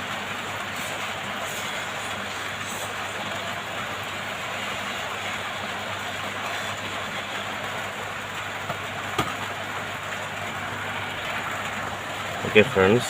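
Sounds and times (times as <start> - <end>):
hot-air station blowing hiss: 0.0 - 8.1.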